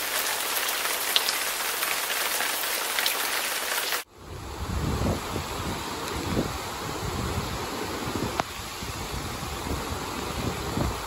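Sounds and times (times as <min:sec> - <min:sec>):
heavy rain hissing: 0:00.0 - 0:11.0
rushing floodwater rumble: 0:00.0 - 0:11.0
wind on microphone: 0:04.1 - 0:11.0.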